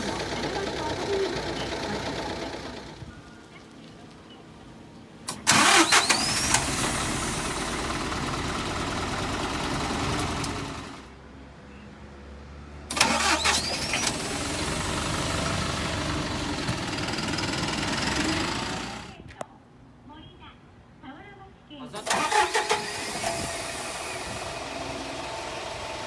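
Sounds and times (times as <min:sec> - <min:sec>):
diesel engine cranking and starting: 0:00.0 - 0:03.2, 0:05.2 - 0:11.2, 0:12.8 - 0:19.2, 0:22.0 - 0:26.0
diesel engine idling: 0:00.0 - 0:03.2, 0:05.3 - 0:11.2, 0:12.9 - 0:19.2, 0:22.0 - 0:26.0.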